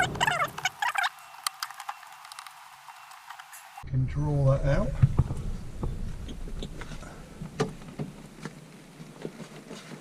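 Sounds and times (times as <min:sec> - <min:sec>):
low rumble: 0:03.8 - 0:08.5.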